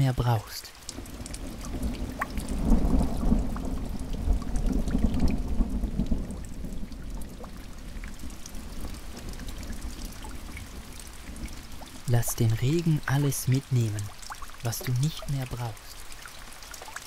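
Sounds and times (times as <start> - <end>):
raindrops tapping: 0.0 - 17.0
steady rain: 0.0 - 17.0
thunder rumbling: 1.0 - 14.1.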